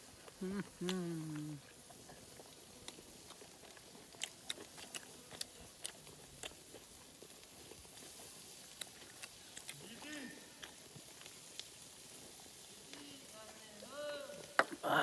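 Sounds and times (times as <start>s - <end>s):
chewing mouth clicks and smacks: 0.0s - 12.5s.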